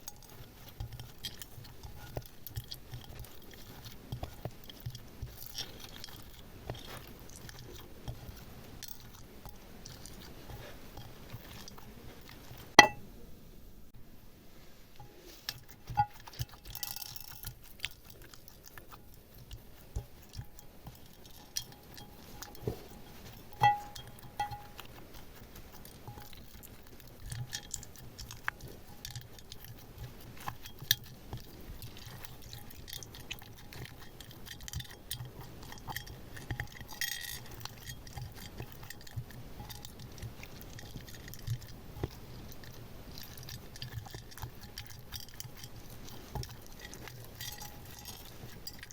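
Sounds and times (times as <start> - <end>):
squishy slime sounds: 0.0 - 12.8
decorations clicking and clinking: 15.5 - 48.9.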